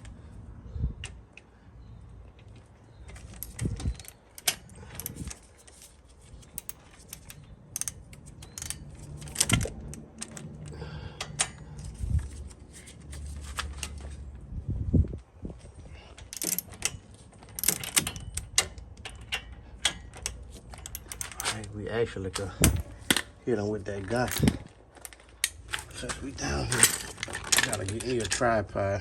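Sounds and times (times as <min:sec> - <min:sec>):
metallic clicking of hand tools: 0:03.4 - 0:12.0, 0:16.3 - 0:21.7.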